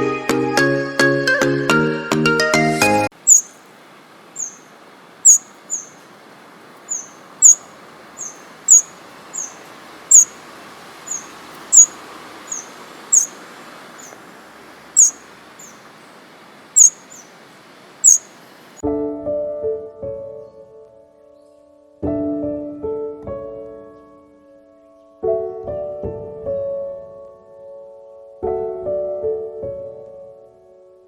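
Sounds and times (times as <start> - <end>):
faint steady hiss: 3.1 - 18.8
small bird chirping: 3.1 - 18.8.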